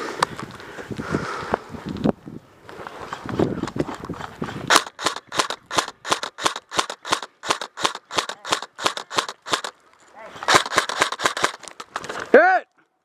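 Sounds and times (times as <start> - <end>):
airsoft gun shots snapping: 4.7 - 9.7, 10.5 - 11.8.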